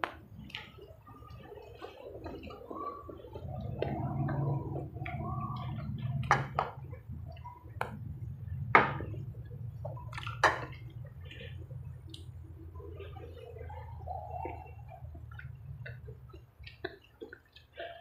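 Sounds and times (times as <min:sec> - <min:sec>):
steady low hum: 0:01.9 - 0:17.5
wet chewing and lip smacks: 0:09.4 - 0:18.0.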